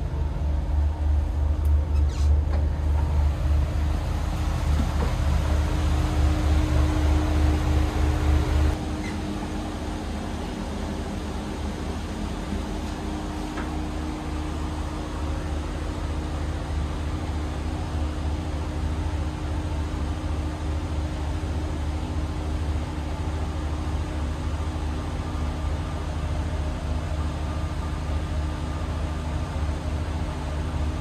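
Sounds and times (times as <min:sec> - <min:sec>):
train carriage rumble and hum: 0:00.0 - 0:31.0.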